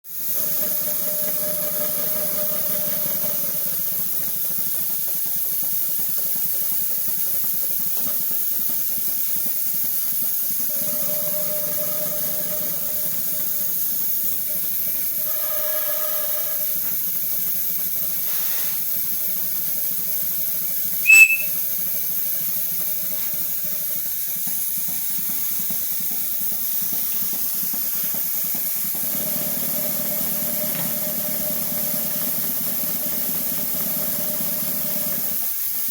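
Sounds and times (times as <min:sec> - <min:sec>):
sharp high whistle: 0:10.7 - 0:13.8, 0:15.1 - 0:17.0, 0:21.0 - 0:21.6.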